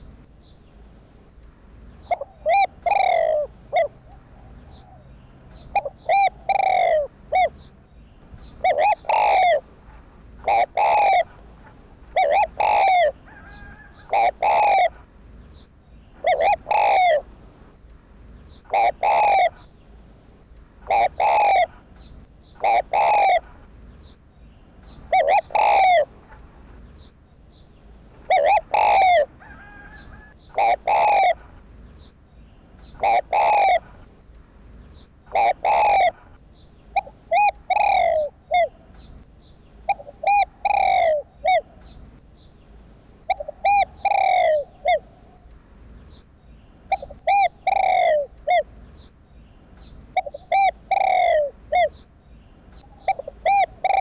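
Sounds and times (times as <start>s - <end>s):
dove cooing: 2.0s - 7.7s, 8.4s - 15.1s, 16.2s - 17.3s, 18.7s - 19.7s, 20.8s - 21.9s, 22.6s - 23.6s, 24.9s - 26.6s, 28.2s - 31.6s, 32.9s - 34.1s, 35.3s - 39.1s, 39.8s - 41.9s, 43.3s - 45.4s, 46.9s - 48.7s, 50.2s - 52.0s, 52.8s - 54.0s.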